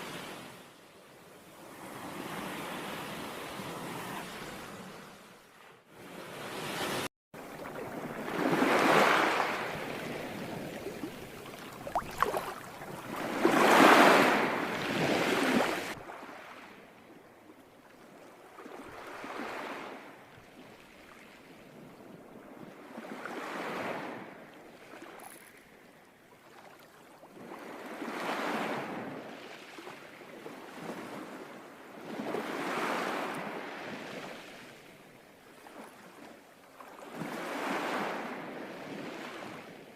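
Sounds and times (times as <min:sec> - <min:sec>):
sea waves washing onto shore: 0:06.7 - 0:16.7.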